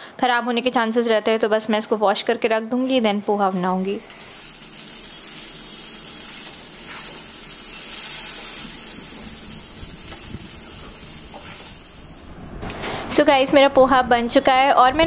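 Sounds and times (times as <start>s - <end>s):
food sizzling in a pan: 3.7s - 12.3s.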